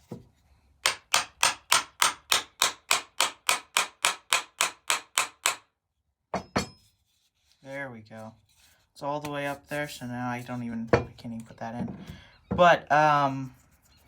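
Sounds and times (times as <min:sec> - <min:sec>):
hammer striking wooden mallet: 0:00.8 - 0:05.7.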